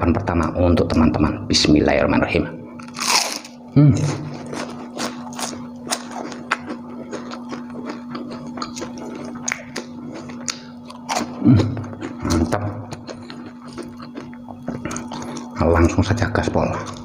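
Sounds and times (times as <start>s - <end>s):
crunchy chewing: 2.8s - 16.0s.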